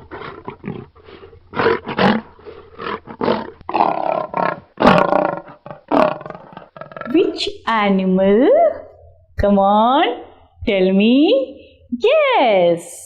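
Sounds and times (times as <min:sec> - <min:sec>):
lion roaring and grunting: 0:00.0 - 0:07.2.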